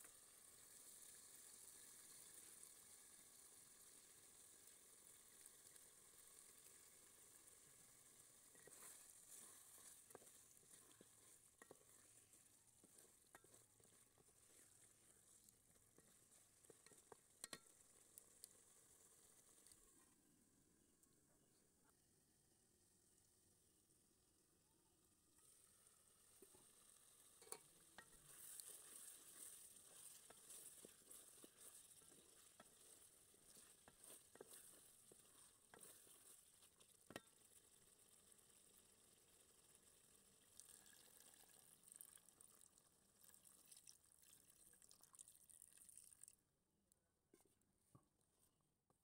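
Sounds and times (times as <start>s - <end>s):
faint sizzling in a pot: 0.0s - 46.5s.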